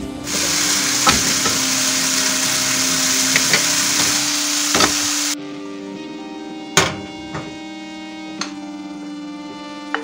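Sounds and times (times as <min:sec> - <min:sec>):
squid frying in butter: 0:00.2 - 0:05.4.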